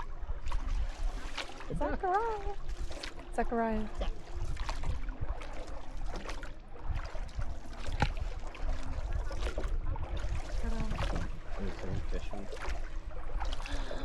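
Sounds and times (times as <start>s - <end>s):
boat engine low rumble: 0.0s - 14.0s
water sounds: 0.0s - 14.0s
wind on microphone: 0.0s - 14.0s
faint voices: 10.6s - 12.5s.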